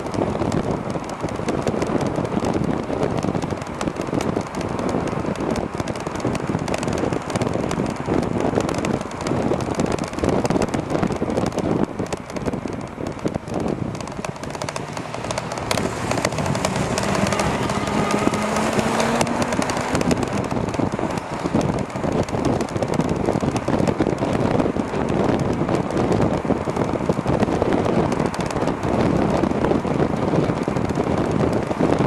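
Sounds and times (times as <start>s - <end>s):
hub motor hum rising in pitch: 0.0s - 32.0s
road noise: 0.0s - 32.0s
wind buffeting microphone: 0.0s - 32.0s.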